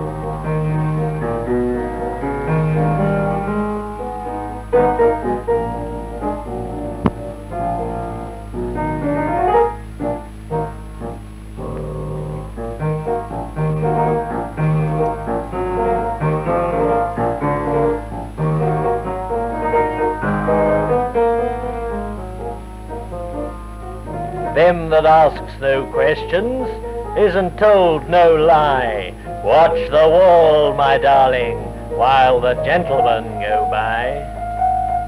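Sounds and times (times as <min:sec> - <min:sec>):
low hum: 0:00.0 - 0:35.0
piano music: 0:00.0 - 0:35.0.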